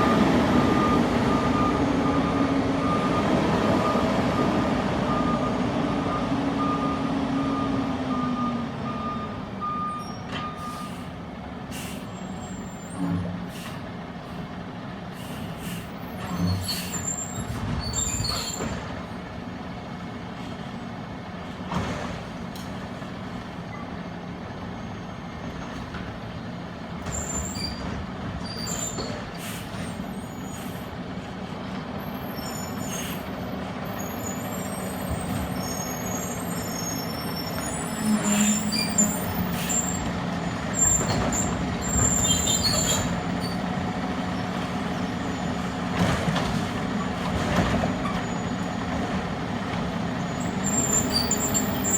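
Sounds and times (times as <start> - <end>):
reversing alarm beeping: 0.0 - 11.0
garbage truck engine hum: 0.0 - 51.9.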